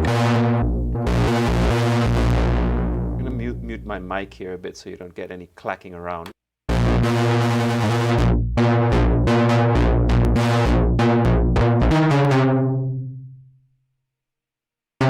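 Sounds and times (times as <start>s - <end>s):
synthesizer bass notes: 0.0s - 4.3s.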